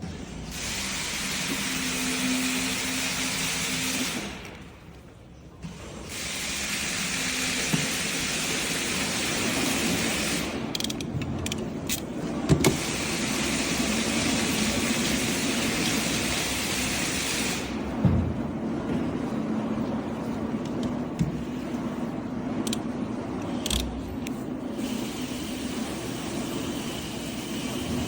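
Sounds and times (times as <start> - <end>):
machine hissing and humming: 0.0 - 4.7, 5.6 - 11.0, 11.9 - 18.2, 21.1 - 28.0.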